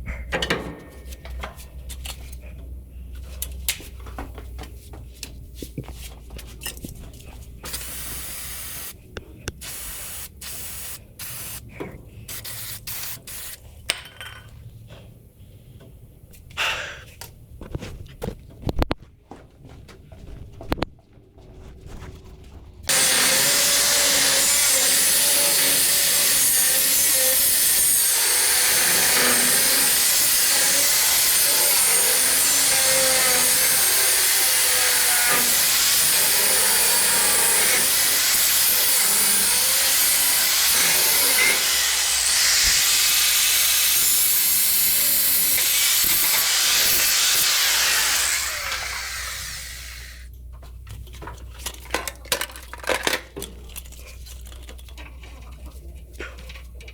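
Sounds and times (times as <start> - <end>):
power tool harsh hiss: 7.7 - 9.0, 9.6 - 11.6, 22.9 - 50.3.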